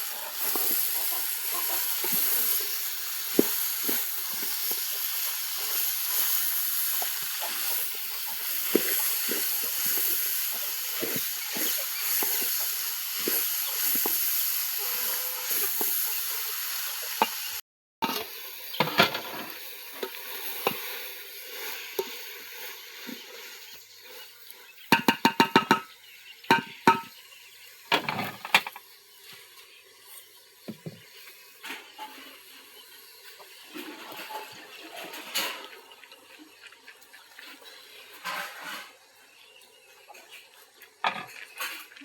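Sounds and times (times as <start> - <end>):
pots and utensils clinking: 0.0 - 16.2, 17.1 - 20.9, 24.9 - 25.9, 26.5 - 27.2, 27.9 - 28.9, 41.0 - 42.0
steam hissing: 0.0 - 25.9, 26.5 - 27.2.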